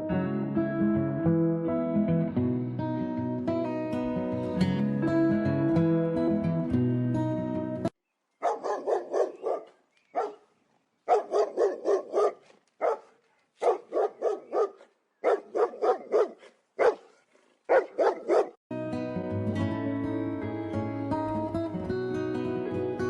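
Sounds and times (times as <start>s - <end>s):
dog barking: 8.4s - 10.4s, 11.1s - 18.6s.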